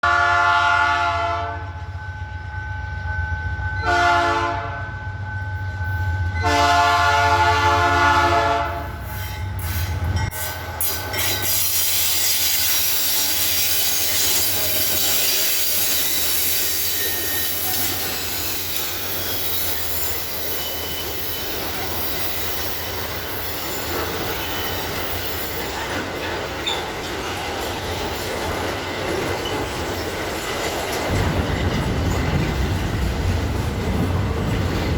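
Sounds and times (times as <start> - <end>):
train horn blasts: 0.0 - 1.9, 3.8 - 5.0, 6.4 - 9.0
locomotive engines rumbling: 1.8 - 34.9
wagon wheels clickety-clack: 20.6 - 34.9.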